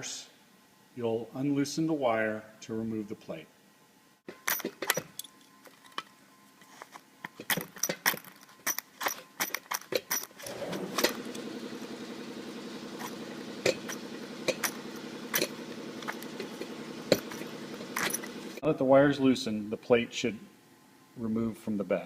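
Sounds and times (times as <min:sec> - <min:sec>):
steady motor hum: 0:09.3 - 0:18.6.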